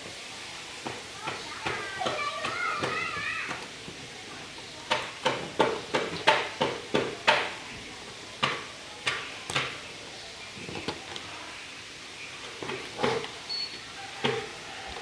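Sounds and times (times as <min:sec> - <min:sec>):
sharp knocks: 0:04.9 - 0:07.6.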